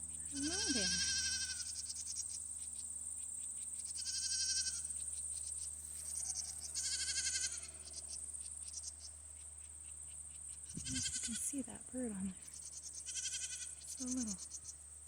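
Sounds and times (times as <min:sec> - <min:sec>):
goat bleating: 0:00.4 - 0:01.7, 0:04.0 - 0:04.8, 0:06.8 - 0:07.7, 0:10.8 - 0:11.5, 0:13.0 - 0:14.3.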